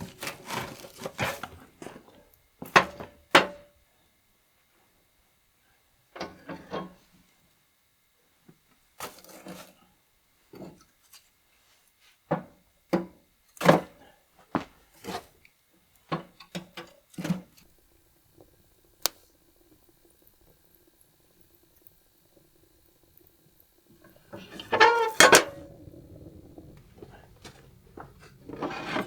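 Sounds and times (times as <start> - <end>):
short scraping rub: 24.4 - 29.0.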